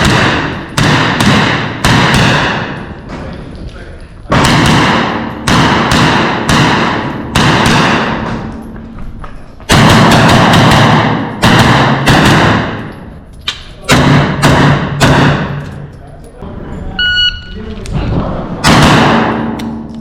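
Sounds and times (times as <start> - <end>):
pistol shots echoing: 0.0 - 3.0, 4.3 - 8.6, 9.7 - 13.1, 13.8 - 15.9, 18.6 - 19.8.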